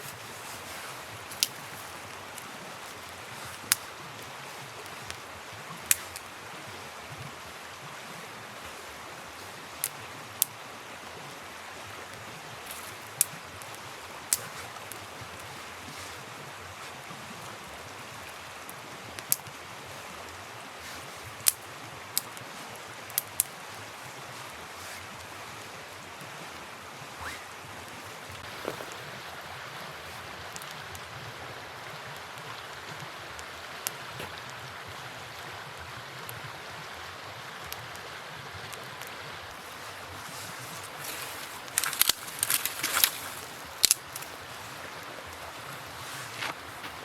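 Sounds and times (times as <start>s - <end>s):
campfire crackling and popping: 0.0s - 26.4s, 30.5s - 31.1s, 38.7s - 47.0s
flowing river water: 0.0s - 47.0s.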